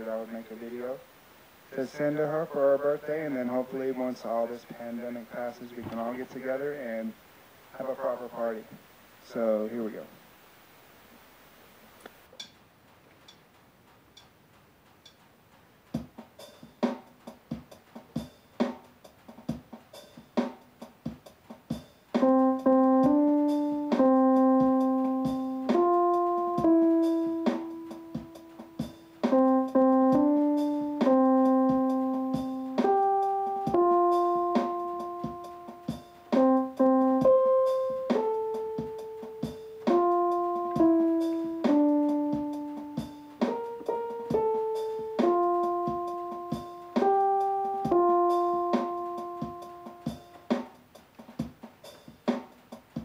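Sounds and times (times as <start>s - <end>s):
light percussive ticks: 12.0s - 16.2s
piano chords: 22.1s - 50.7s.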